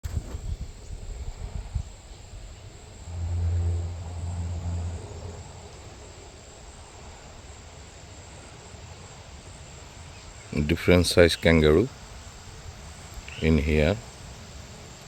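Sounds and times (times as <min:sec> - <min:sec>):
faint outdoor background: 0:00.8 - 0:07.4, 0:08.2 - 0:15.0
vehicle engine passing: 0:02.9 - 0:06.4.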